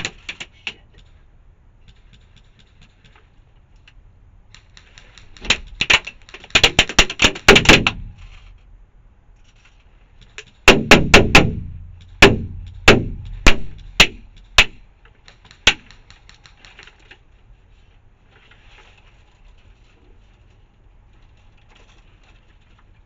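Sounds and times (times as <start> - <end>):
airsoft rifle shots: 4.5 - 8.2, 10.6 - 16.8.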